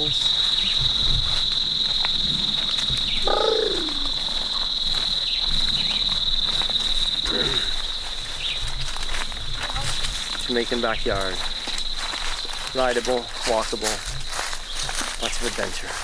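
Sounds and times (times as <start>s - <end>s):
insects chirring: 0.0s - 16.0s
short falling call: 3.2s - 4.2s.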